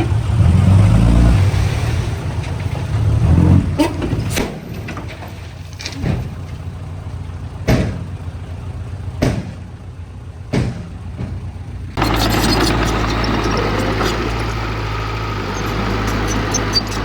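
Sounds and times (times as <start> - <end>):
diesel engine running: 0.0 - 17.0
sharp knocks: 9.2 - 9.6
louder engine: 12.0 - 17.0.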